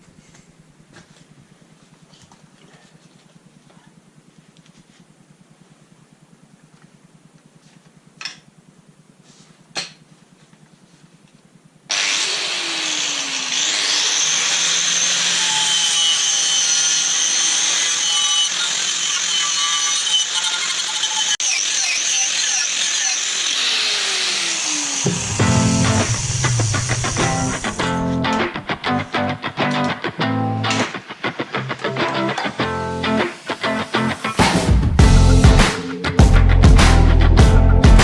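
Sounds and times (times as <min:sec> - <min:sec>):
power tool whining: 0:11.9 - 0:36.2.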